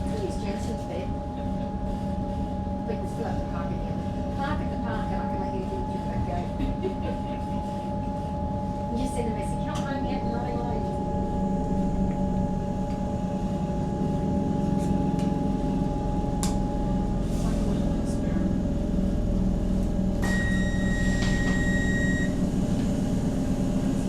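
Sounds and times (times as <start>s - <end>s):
train equipment hum: 0.0s - 24.0s
high-pitched electronic beep: 20.2s - 22.4s.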